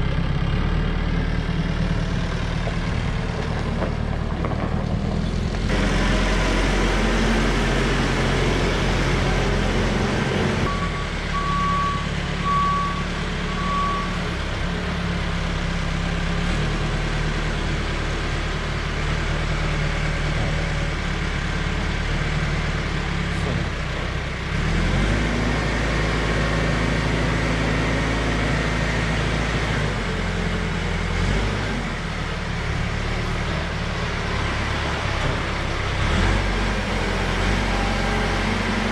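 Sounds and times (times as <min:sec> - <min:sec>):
tractor engine running: 0:00.0 - 0:38.9
short beeps: 0:10.7 - 0:14.2.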